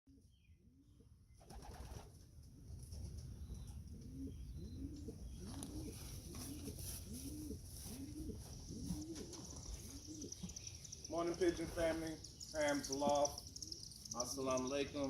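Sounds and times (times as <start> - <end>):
pigeon cooing: 3.5 - 10.6.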